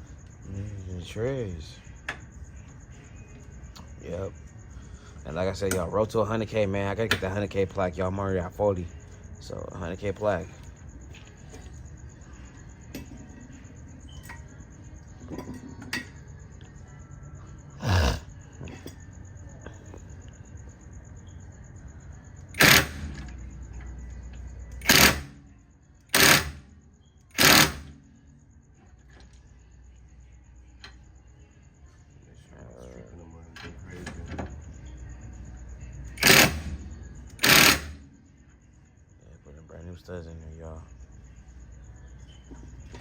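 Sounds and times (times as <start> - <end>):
air impact wrench bursts: 22.6 - 23.3, 24.8 - 25.4, 26.1 - 26.6, 27.3 - 28.0, 36.2 - 36.8, 37.4 - 38.0.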